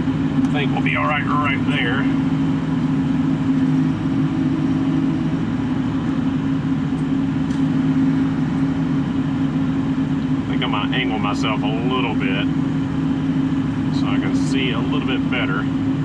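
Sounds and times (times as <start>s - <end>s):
diesel engine heard from cab: 0.0s - 16.0s.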